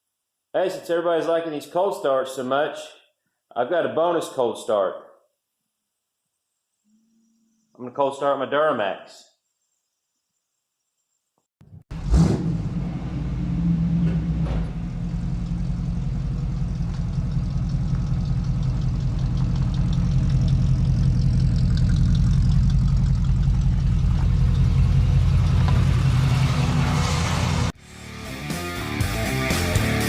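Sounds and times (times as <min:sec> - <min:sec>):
diesel engine starting and idling: 0:11.9 - 0:27.8.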